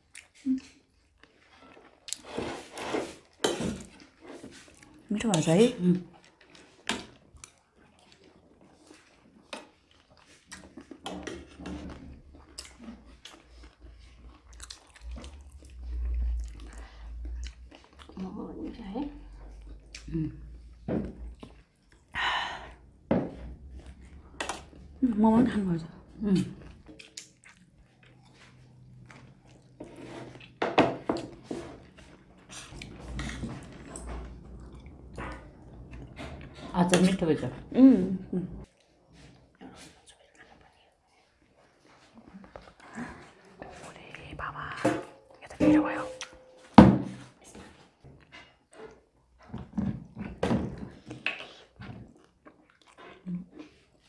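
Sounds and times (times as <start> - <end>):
people chewing and biting food: 0.0 - 5.1, 5.9 - 25.0, 25.6 - 37.2, 45.9 - 54.0.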